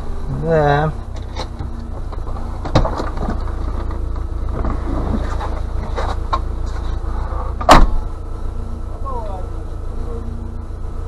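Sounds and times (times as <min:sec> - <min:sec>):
car engine idling: 0:00.0 - 0:11.0
loud sharp thump: 0:07.6 - 0:08.0.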